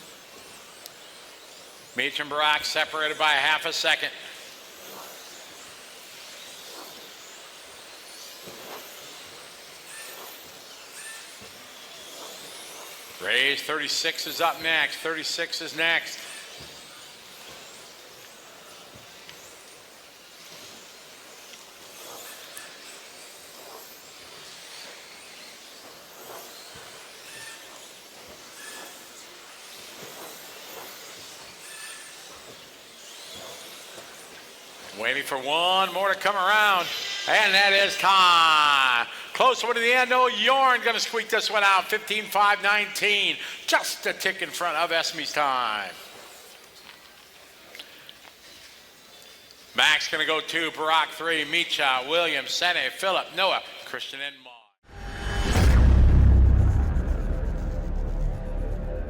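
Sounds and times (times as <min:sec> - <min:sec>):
steady hiss: 0:00.0 - 0:53.6
small motors and tyres rushing: 0:04.2 - 0:35.4
high motor whines: 0:54.9 - 0:59.0.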